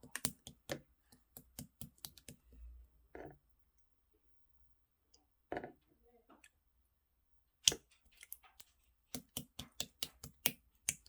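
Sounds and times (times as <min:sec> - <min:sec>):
slime squishing: 0:00.0 - 0:02.6, 0:07.6 - 0:11.0.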